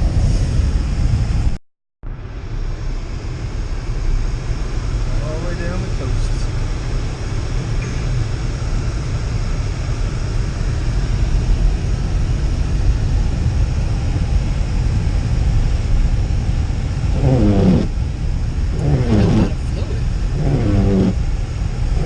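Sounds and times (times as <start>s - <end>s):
person speaking: 18.7s - 21.2s.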